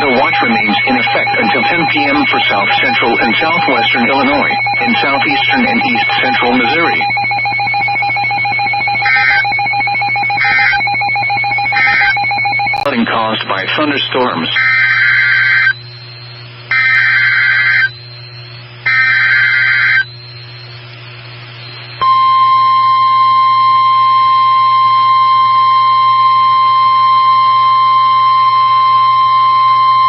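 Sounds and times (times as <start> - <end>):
warbling digital header bursts: 0.0 - 13.0
low steady hum: 0.0 - 30.0
steady warning alarm tone: 0.0 - 30.0.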